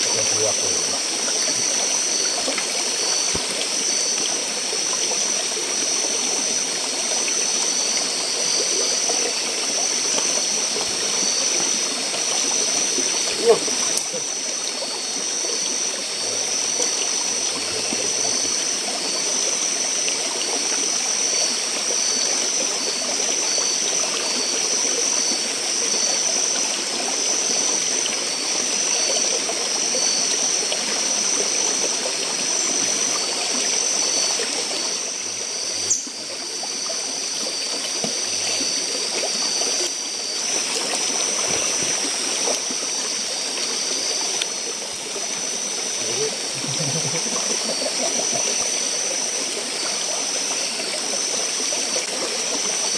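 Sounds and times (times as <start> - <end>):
stream water running: 0.0 - 52.9
high-pitched pulsing buzz: 45.4 - 49.8.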